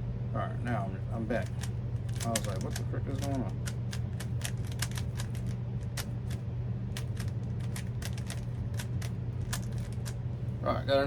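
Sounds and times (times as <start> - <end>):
steady low hum: 0.0 - 11.0
puzzle cube clicking: 1.4 - 6.4, 7.0 - 10.2.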